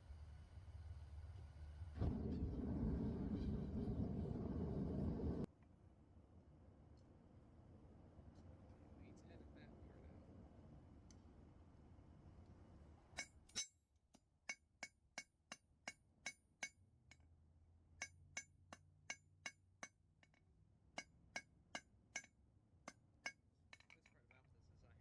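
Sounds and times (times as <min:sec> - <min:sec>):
low steady rumble: 0:00.0 - 0:05.5
hammer striking metal on anvil: 0:21.0 - 0:23.9.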